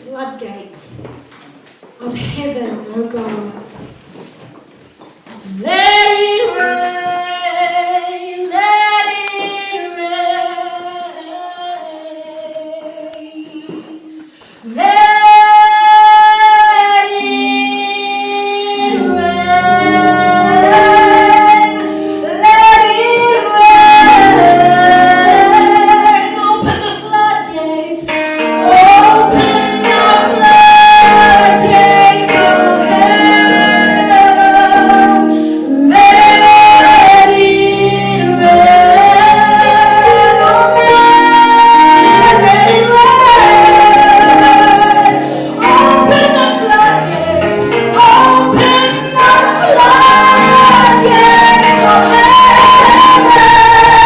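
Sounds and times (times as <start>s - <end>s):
woman singing worship song: 5.3s - 54.0s
instrumental accompaniment with bass: 17.4s - 54.0s.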